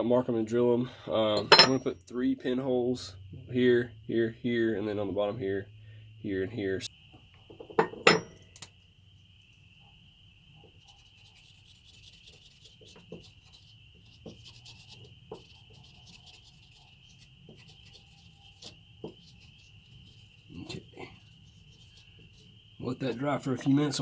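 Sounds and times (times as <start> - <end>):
marker rubbing on steel blade: 10.8 - 23.2.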